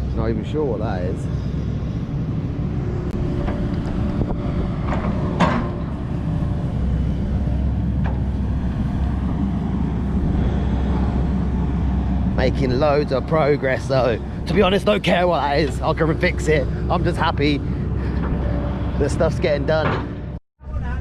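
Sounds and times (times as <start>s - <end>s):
diesel digger engine running: 0.0s - 20.4s
metal knocks and clanks: 3.2s - 6.5s, 19.6s - 20.3s.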